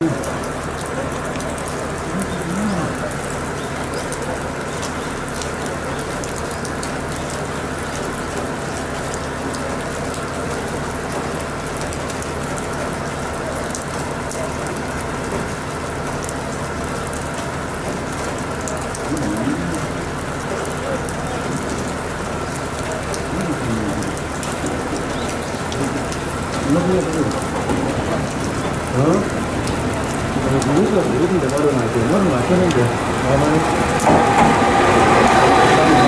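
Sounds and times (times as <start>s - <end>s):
rain-like patter: 0.0s - 36.0s
dove cooing: 2.1s - 3.2s
diesel railcar idling: 24.2s - 36.0s.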